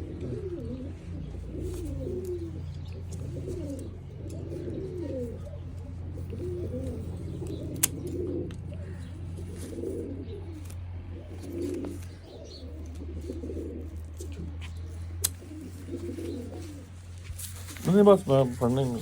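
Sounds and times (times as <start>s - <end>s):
pigeons cooing: 0.0s - 19.0s
steady low hum: 0.0s - 19.0s.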